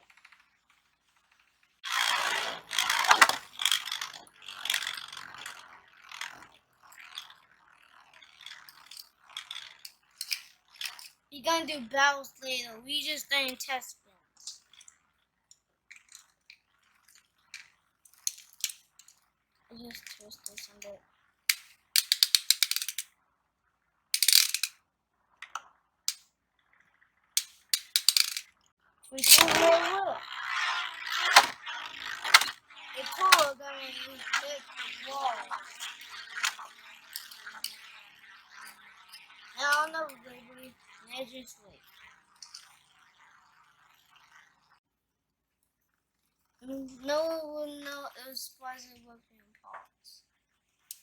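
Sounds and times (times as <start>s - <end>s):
spinning top launcher ratcheting whir: 0.0s - 23.2s, 24.2s - 24.8s, 25.4s - 44.8s
spinning top scraping and rattling: 0.0s - 23.2s, 23.9s - 44.8s, 50.8s - 51.0s
plastic parts clicking: 1.9s - 5.6s, 8.4s - 11.1s, 17.6s - 19.1s, 19.9s - 20.9s, 21.5s - 23.1s, 24.2s - 24.7s, 27.4s - 28.5s, 29.2s - 29.9s, 30.6s - 37.8s.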